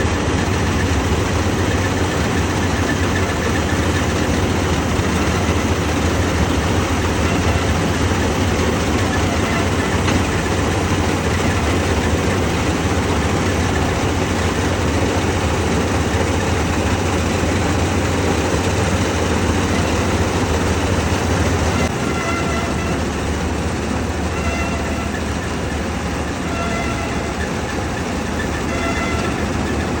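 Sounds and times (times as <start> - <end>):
harvester machine drone: 0.0 - 30.0.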